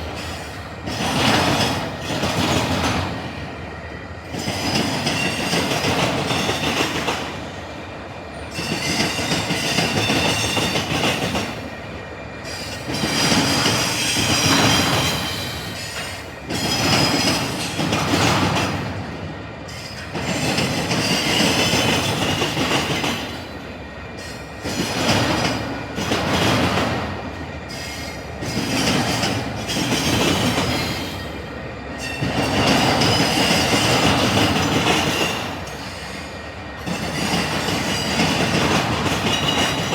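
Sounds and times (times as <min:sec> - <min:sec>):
train wheels slamming rail crossing: 0:08.4 - 0:11.7, 0:12.4 - 0:39.9.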